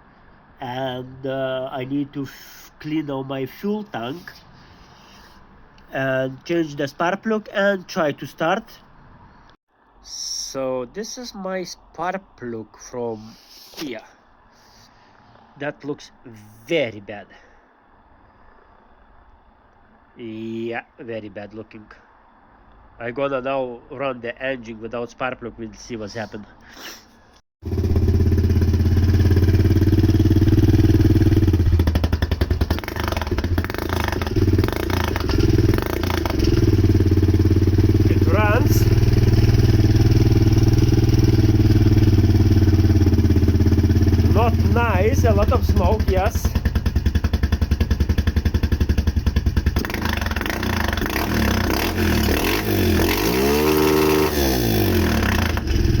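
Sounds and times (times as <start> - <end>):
quad bike engine running rough: 27.6 - 56.0.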